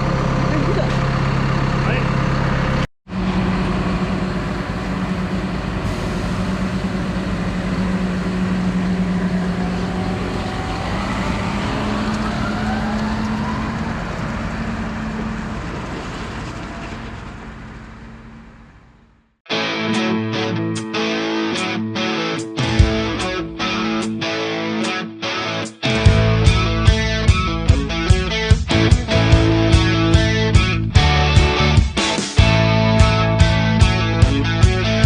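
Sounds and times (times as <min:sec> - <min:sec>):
tractor diesel engine running: 0:00.0 - 0:19.3.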